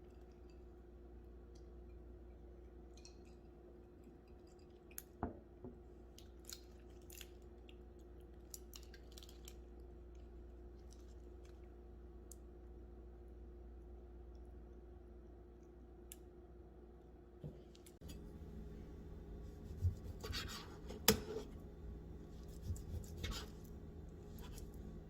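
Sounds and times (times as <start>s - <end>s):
steady low hum: 9.7s - 25.0s.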